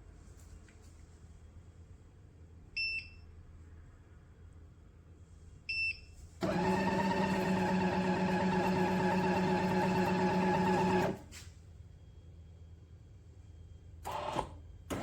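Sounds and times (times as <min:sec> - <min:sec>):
espresso machine motor hum: 0:06.4 - 0:11.2.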